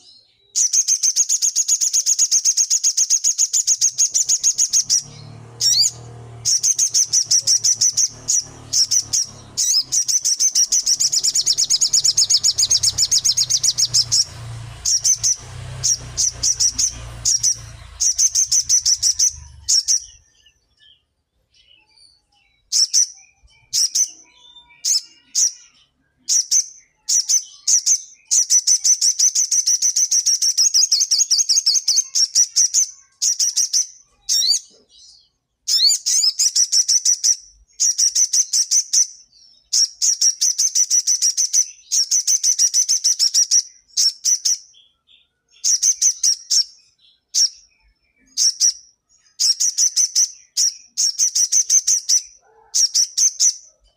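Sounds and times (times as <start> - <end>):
songbird singing rapid trills: 0.0 - 34.6.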